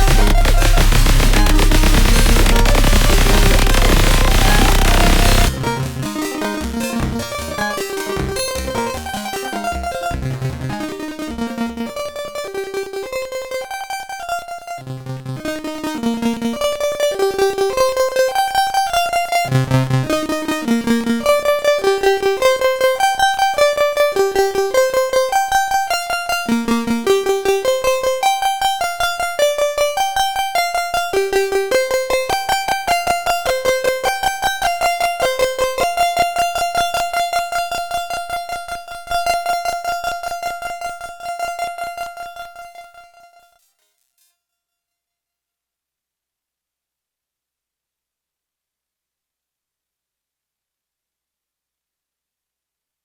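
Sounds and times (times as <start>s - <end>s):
pulsed synthesizer lead melody: 0.0s - 10.7s
synthesizer bass line: 0.0s - 10.7s.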